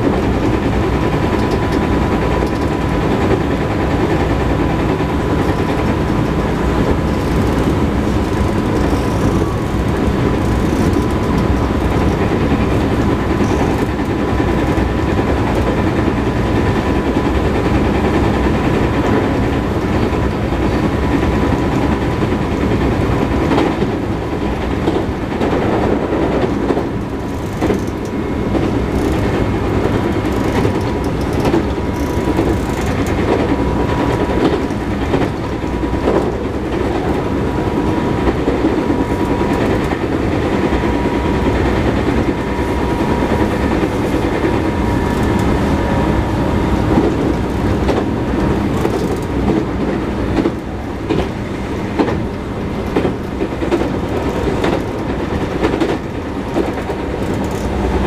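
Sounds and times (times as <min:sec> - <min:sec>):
train rumble: 0:00.0 - 0:58.0
wheel-on-rail clatter: 0:00.0 - 0:58.0
wheel flat knocking: 0:05.4 - 0:14.7.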